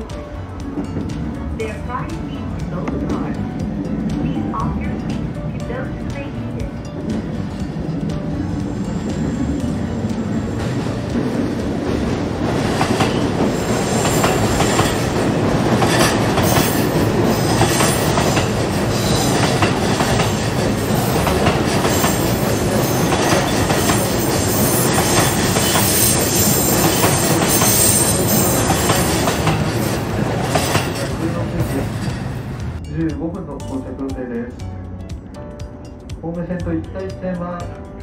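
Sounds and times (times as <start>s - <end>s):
train running noise: 0.0s - 38.0s
wheels clicking over rail joints: 6.2s - 32.8s.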